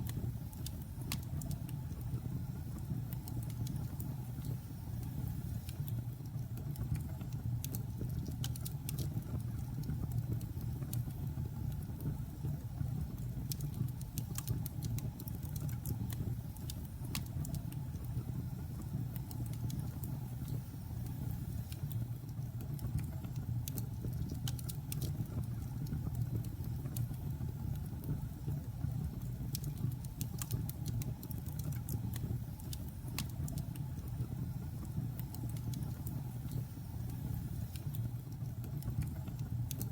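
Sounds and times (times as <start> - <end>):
logs crackling and popping: 29.4 - 33.9.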